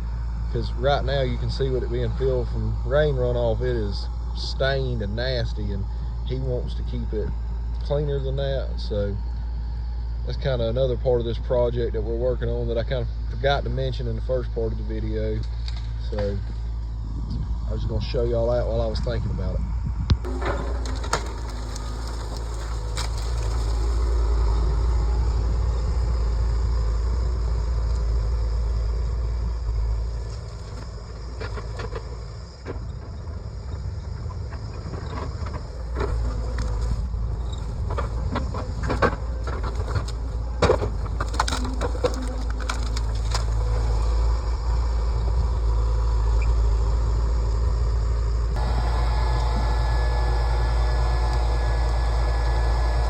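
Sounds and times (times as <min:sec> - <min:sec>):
excavator diesel engine running: 0:00.0 - 0:18.9, 0:20.2 - 0:53.0
sharp knocks and cracks: 0:20.2 - 0:24.1, 0:37.9 - 0:44.0.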